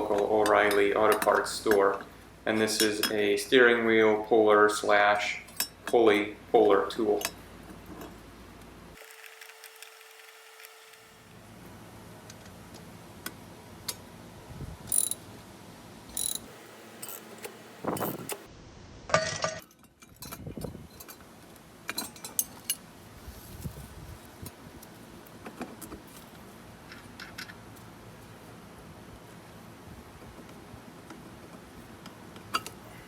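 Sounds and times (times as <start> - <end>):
metal tools clicking: 14.9 - 15.2, 16.1 - 18.4.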